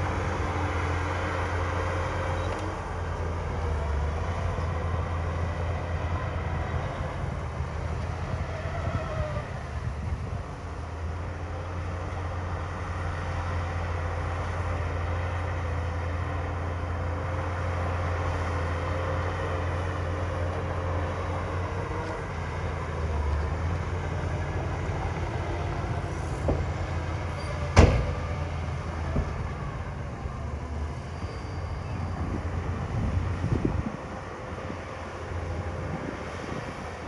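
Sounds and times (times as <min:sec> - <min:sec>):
diesel machinery engine running: 0:00.0 - 0:37.0
light knocks: 0:27.8 - 0:28.4
sharp loud bang: 0:27.8 - 0:28.5.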